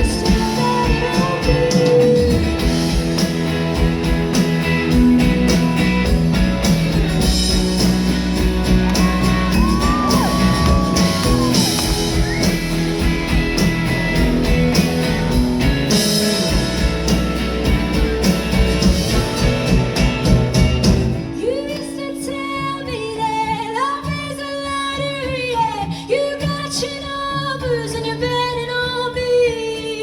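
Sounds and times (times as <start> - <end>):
live rock band playing: 0.0 - 23.4.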